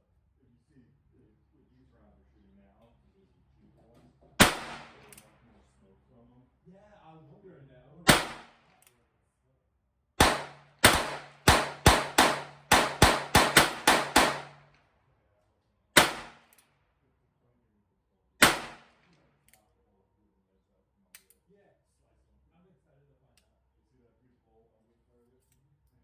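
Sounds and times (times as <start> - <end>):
gunshots: 4.4 - 5.2, 8.1 - 8.7, 10.2 - 14.6, 16.0 - 16.5, 18.4 - 19.0.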